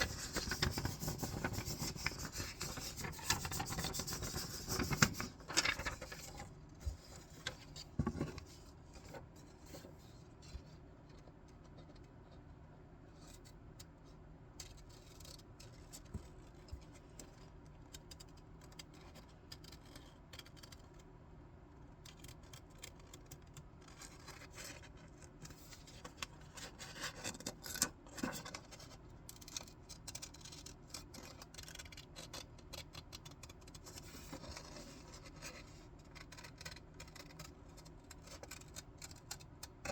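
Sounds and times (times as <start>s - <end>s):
scissors cutting paper: 0.0s - 6.2s, 26.0s - 39.9s
paper rustling: 0.0s - 8.6s.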